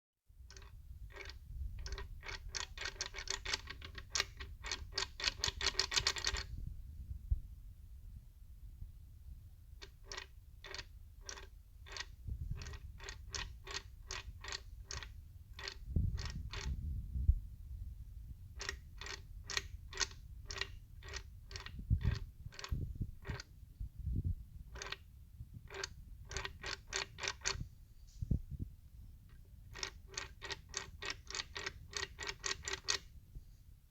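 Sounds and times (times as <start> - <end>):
steady ticking: 0.5 - 6.5, 9.8 - 16.7, 18.6 - 23.4, 24.7 - 25.0, 25.7 - 27.6, 29.7 - 33.0.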